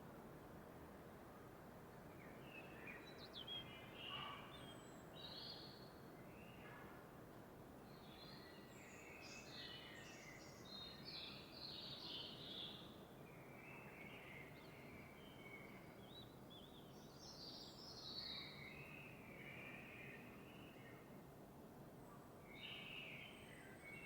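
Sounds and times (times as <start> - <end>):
songbirds chirping: 2.1 - 6.7, 7.8 - 24.0.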